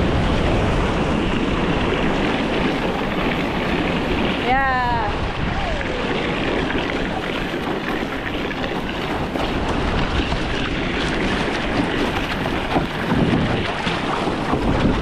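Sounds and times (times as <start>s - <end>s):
rushing water and surf: 0.0s - 15.0s
wind buffeting microphone: 0.0s - 15.0s.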